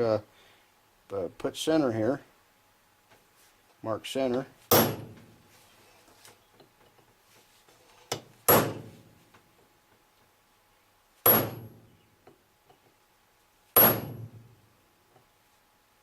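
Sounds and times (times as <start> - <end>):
hammer striking metal punch: 4.7 - 5.2, 8.5 - 8.9, 11.2 - 11.8, 13.8 - 14.4.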